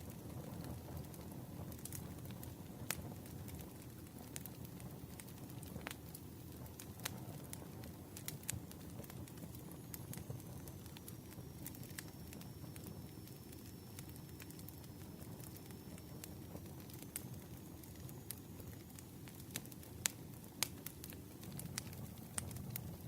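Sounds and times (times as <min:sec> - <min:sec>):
burning wood crackling and popping: 0:00.0 - 0:23.0
campfire flames rumbling: 0:00.0 - 0:23.0
faint high whistle: 0:10.4 - 0:18.9.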